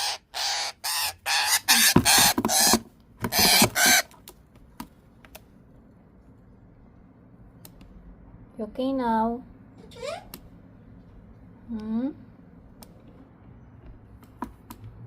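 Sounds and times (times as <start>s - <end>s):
parrot harsh squawks: 0.0s - 4.2s.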